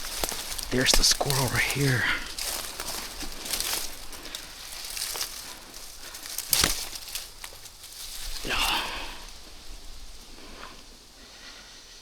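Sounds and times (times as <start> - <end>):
dry leaves crunching and rustling: 0.0 - 11.0.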